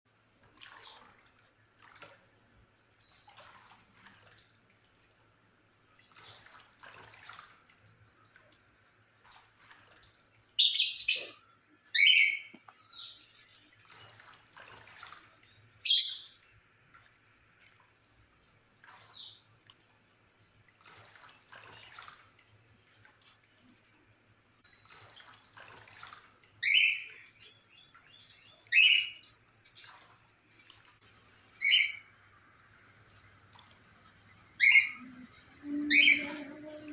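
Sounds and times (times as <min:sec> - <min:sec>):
bird splashing in water: 0:00.4 - 0:05.3, 0:05.9 - 0:11.1, 0:12.1 - 0:18.1, 0:18.8 - 0:19.9, 0:20.6 - 0:23.9, 0:24.8 - 0:32.1.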